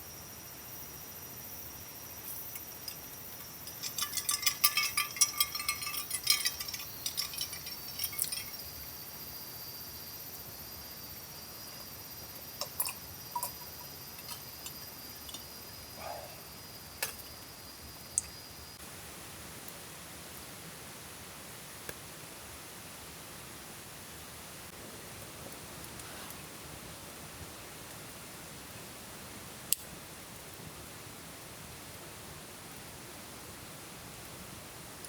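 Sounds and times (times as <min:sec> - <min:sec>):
small hard objects clinking: 0:02.2 - 0:08.9, 0:12.6 - 0:15.8, 0:17.0 - 0:17.3.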